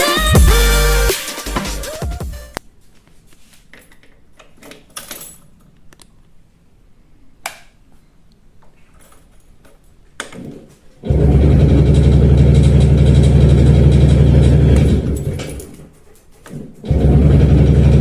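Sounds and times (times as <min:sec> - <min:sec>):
two-stroke engine running: 0:11.1 - 0:15.6, 0:16.9 - 0:18.0
handling clicks and rattles: 0:12.6 - 0:16.9.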